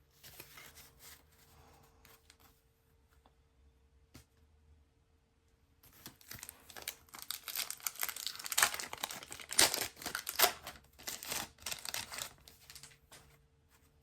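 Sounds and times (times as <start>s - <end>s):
wrapper crinkling and tearing: 6.0s - 13.0s.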